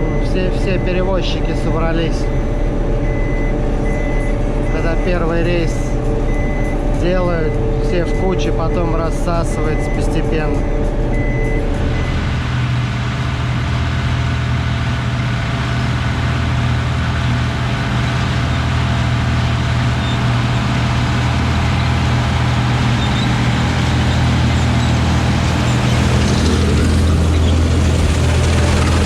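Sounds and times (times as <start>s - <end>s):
combine harvester diesel engine: 0.0s - 29.0s.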